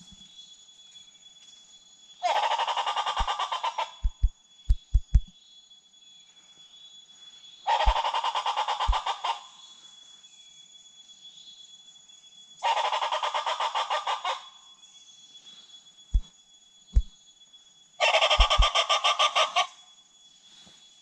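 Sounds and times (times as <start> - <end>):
bird rattling clucking call: 2.3 - 5.2, 7.7 - 9.3, 18.1 - 19.6
low thumps: 4.0 - 5.3, 18.4 - 18.7.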